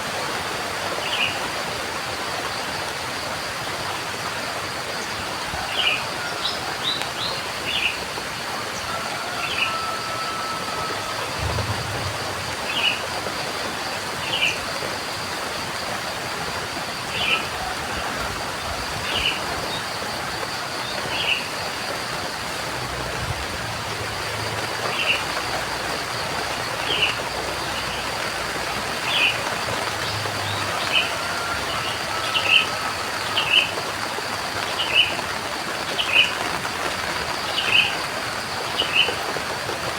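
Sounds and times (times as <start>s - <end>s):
steady rain: 0.0s - 39.9s
faint low rumbles: 11.4s - 13.4s.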